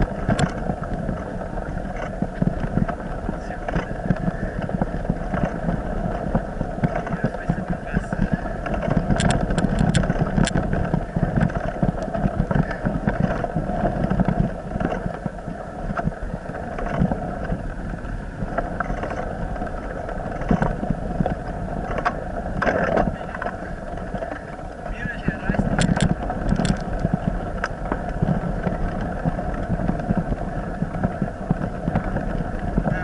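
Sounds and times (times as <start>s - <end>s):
road rumble: 0.0s - 33.0s
vehicle engine running: 0.0s - 33.0s
wind on microphone: 0.0s - 33.0s
clicks and knocks: 25.7s - 27.0s.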